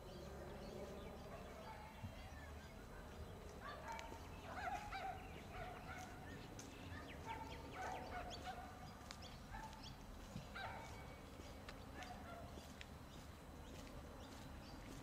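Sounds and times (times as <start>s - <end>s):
birds chirping and warbling: 0.0s - 15.0s
low background hum: 0.0s - 15.0s.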